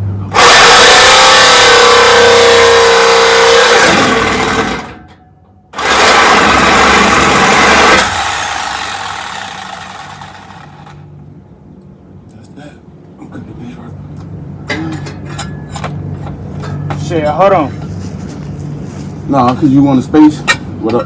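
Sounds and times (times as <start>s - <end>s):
reciprocating saw cutting metal: 0.4s - 5.0s, 5.8s - 11.0s.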